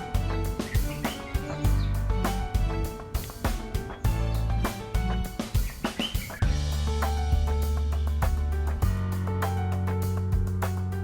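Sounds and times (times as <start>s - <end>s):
pop music with guitar and drums: 0.0s - 7.6s.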